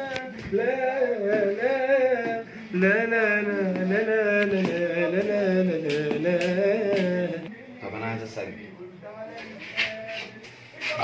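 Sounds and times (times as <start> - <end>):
man singing wordless melody: 0.0 - 11.0.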